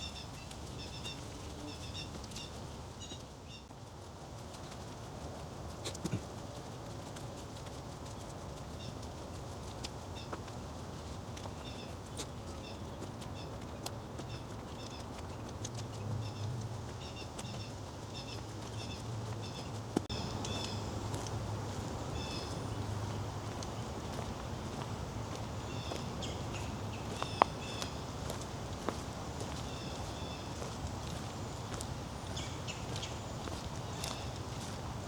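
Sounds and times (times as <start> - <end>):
bird chirping: 15.9 - 34.8.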